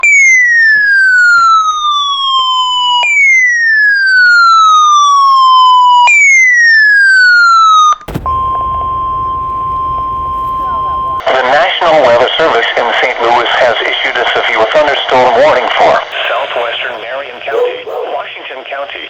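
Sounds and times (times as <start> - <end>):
radio hiss: 12.9 - 19.0.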